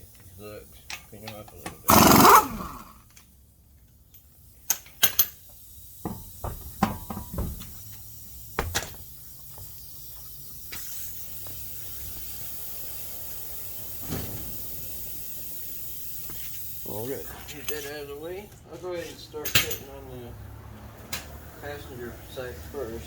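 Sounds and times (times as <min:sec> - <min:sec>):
faint hiss: 0:04.4 - 0:18.5.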